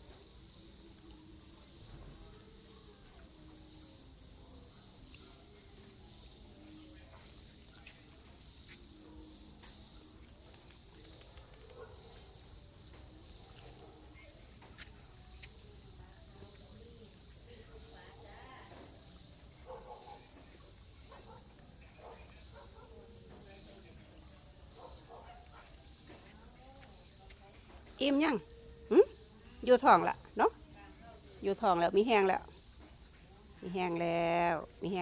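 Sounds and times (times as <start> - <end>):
insects trilling: 0.0 - 35.0.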